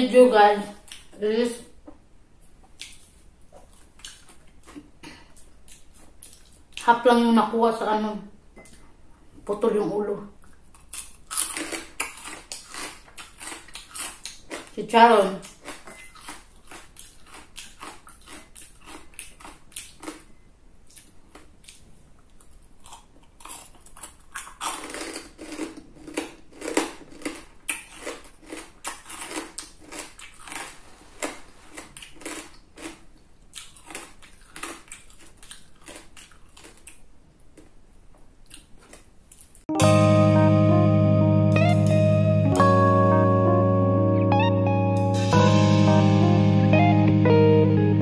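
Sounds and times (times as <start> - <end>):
crunchy chewing: 2.8 - 6.8, 10.4 - 14.8, 15.4 - 37.8, 38.4 - 39.6.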